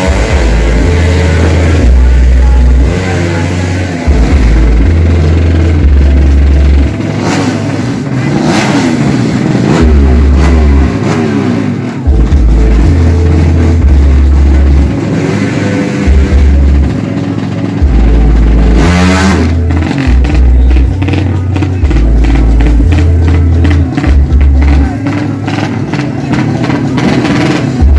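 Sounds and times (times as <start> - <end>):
heavy low thumping: 0.0 - 7.0, 12.1 - 15.2, 16.1 - 17.0, 17.8 - 25.8
motorcycle accelerating away: 0.0 - 27.9
motorcycle engines revving: 0.0 - 27.9.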